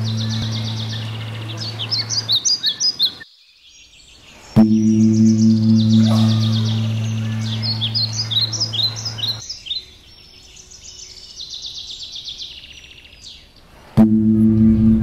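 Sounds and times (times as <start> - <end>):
low ringing gong-like tone: 0.0 - 1.7, 4.6 - 9.1, 14.0 - 15.0
small birds chirping and trilling: 0.0 - 13.8.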